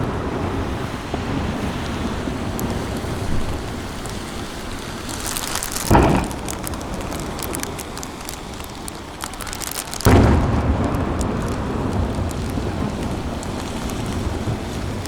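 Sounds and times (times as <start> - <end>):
firework crackles: 0.0 - 15.0
low rolling rumbles: 0.0 - 15.0
firework boom: 5.7 - 7.8, 10.0 - 15.0.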